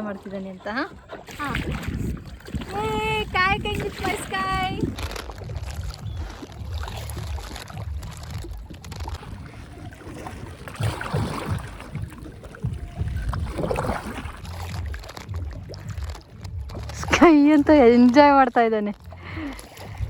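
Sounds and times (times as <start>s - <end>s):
paddle strokes splashing in water: 0.0s - 20.0s
wind rumble on microphone: 0.0s - 20.0s.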